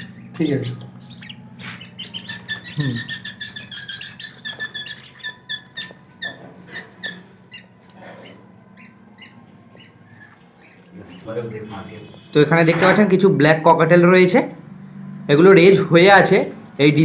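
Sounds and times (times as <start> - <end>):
lovebirds chirping: 0.0 - 12.4.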